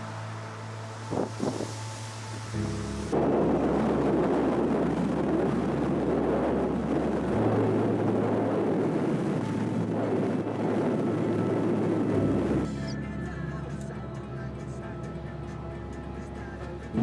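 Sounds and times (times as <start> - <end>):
water spraying around car tyres: 0.5 - 3.2.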